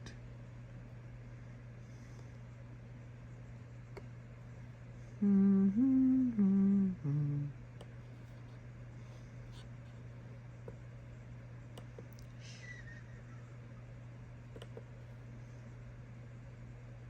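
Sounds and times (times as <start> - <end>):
low electrical hum: 0.0 - 17.0
man humming: 5.2 - 7.6.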